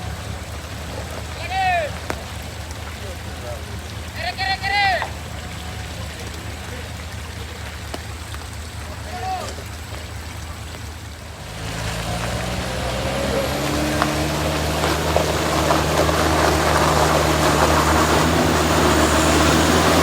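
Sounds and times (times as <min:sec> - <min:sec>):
truck engine droning: 0:00.0 - 0:20.0
rough noise: 0:11.4 - 0:20.0.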